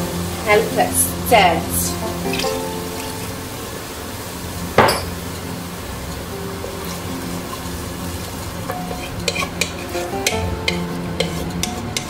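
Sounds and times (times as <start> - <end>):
spoon knocking against pot: 4.8 - 5.1
spoon stirring water sloshing: 8.6 - 12.0.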